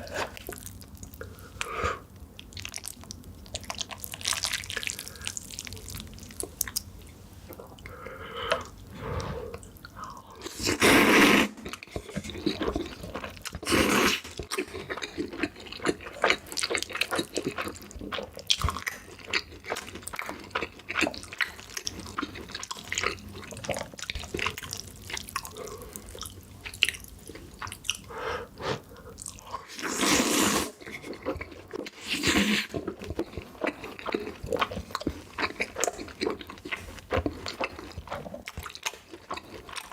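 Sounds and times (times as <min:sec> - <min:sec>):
wet chewing: 0:11.6 - 0:28.1, 0:28.9 - 0:39.9.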